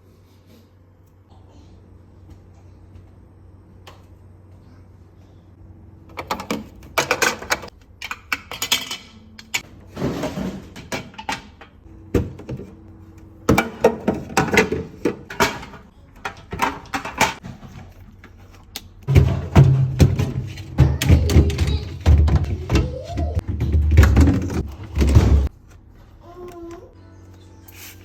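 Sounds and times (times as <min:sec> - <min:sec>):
fridge shelves knocking and clattering: 0:06.1 - 0:07.7, 0:09.7 - 0:12.8, 0:13.4 - 0:18.0, 0:19.1 - 0:25.5.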